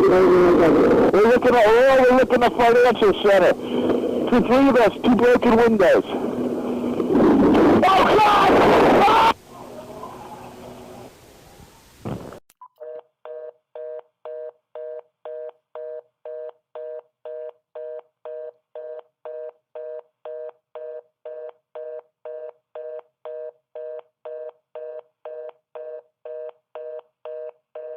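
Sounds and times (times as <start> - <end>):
telephone busy tone beeps: 12.6 - 27.9.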